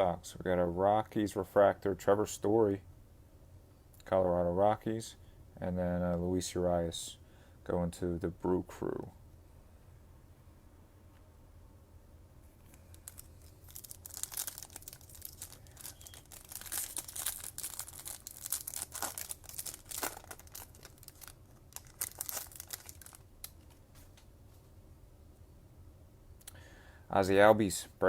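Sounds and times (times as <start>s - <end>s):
plastic wrapper tearing and crinkling: 12.6s - 23.8s.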